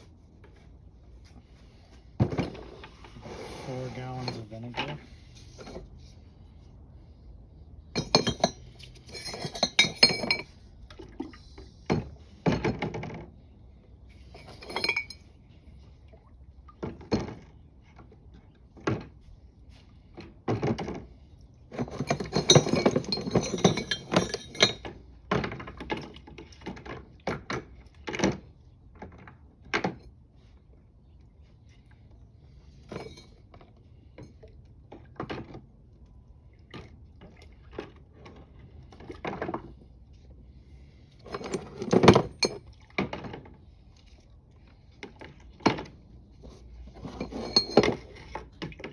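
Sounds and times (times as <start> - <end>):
steel parts clinking: 8.0 - 10.5, 21.8 - 24.8.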